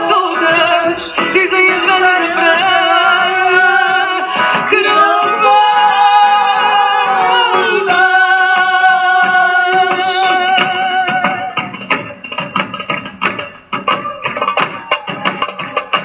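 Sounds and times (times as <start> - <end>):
person singing: 0.0 - 12.1
plucked strings and percussion: 8.6 - 16.0.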